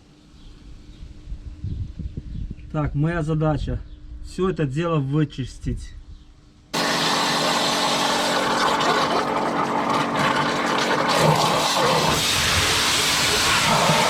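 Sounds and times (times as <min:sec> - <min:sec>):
machine hum: 0:06.7 - 0:14.0
pressure washer hissing spray: 0:11.1 - 0:14.0.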